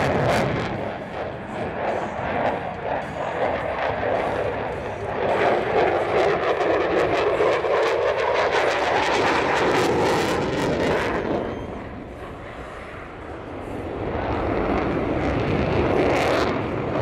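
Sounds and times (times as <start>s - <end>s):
fighter jet flying past: 0.0s - 17.0s.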